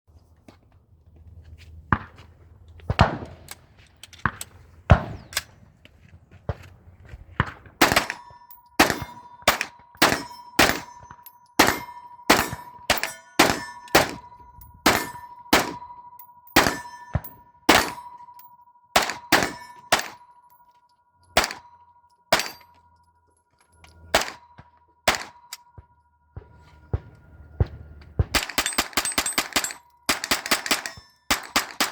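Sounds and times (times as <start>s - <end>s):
gunshots echoing: 2.9s - 3.5s, 4.2s - 5.6s, 7.4s - 15.9s, 16.5s - 18.2s, 19.0s - 20.3s, 21.4s - 21.7s, 22.3s - 22.6s, 24.1s - 25.6s, 26.4s - 31.9s
high ringing tone: 8.2s - 31.3s.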